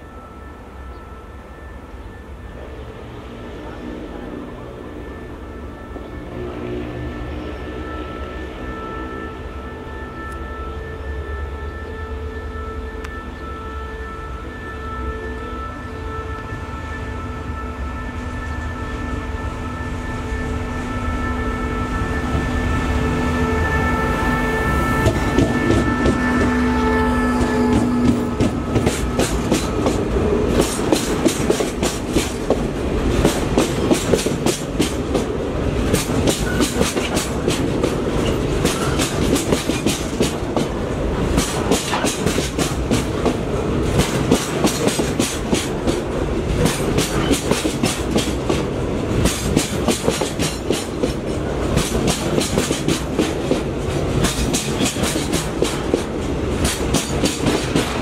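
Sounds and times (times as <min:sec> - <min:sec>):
train wheels rumbling on rail: 0:00.0 - 0:58.0
wheels clacking over rail joints: 0:27.4 - 0:58.0.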